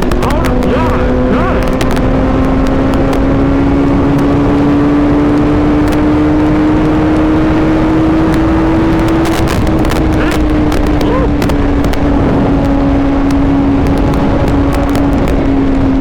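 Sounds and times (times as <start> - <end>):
motorcycle engine at high revs: 0.0 - 16.0
wind rush on microphone: 0.0 - 16.0.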